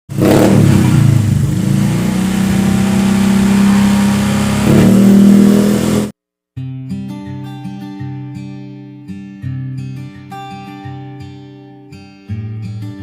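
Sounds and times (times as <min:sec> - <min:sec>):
deep bassy engine exhaust: 0:00.1 - 0:06.1
acoustic guitar music: 0:04.6 - 0:13.0.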